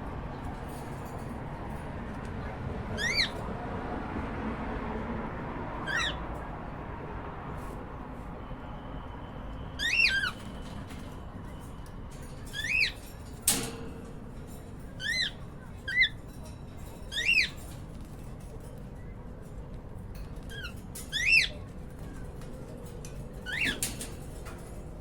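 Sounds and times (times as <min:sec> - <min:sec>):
cockatiel chirping: 0:03.0 - 0:03.4, 0:09.8 - 0:10.5.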